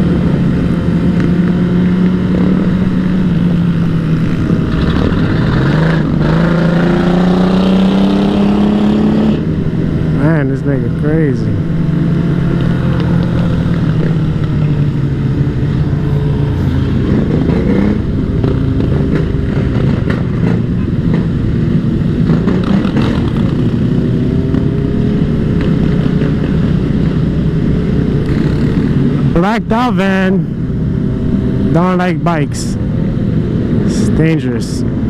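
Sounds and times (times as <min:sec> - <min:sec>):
dirt bike engine running: 0:10.2 - 0:30.2.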